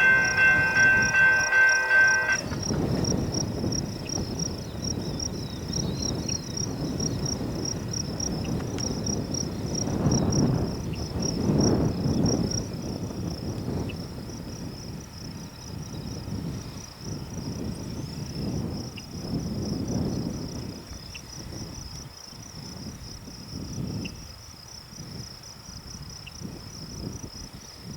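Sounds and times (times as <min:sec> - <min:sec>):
insects chirping: 0:00.0 - 0:03.5.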